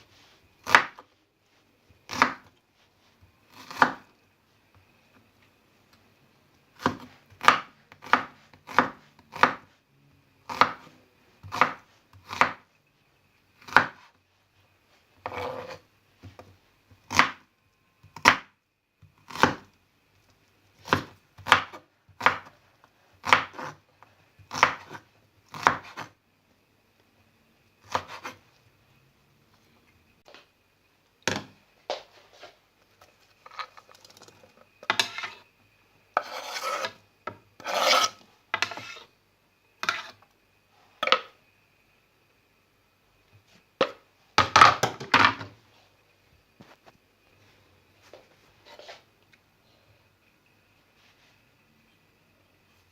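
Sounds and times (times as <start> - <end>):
knife chopping on cutting board: 0.6 - 1.0, 6.8 - 9.7.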